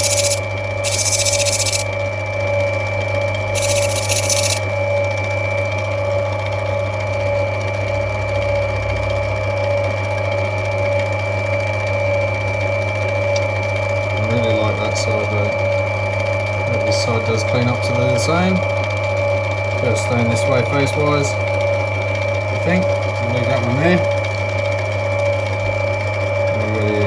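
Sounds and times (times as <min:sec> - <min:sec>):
grinding machine motor hum: 0:00.0 - 0:01.9, 0:03.6 - 0:04.7
stone grinding on wheel: 0:00.0 - 0:01.9, 0:03.6 - 0:04.6.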